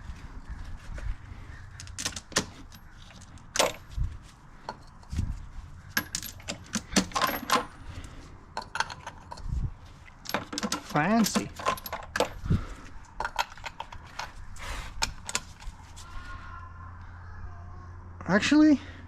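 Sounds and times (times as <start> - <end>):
metal parts and tools clinking: 1.7 - 5.2, 5.9 - 16.0.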